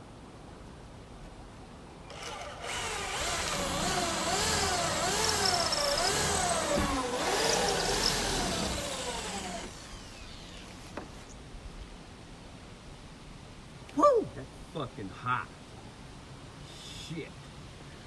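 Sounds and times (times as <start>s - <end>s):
electric drill running: 2.1s - 11.0s.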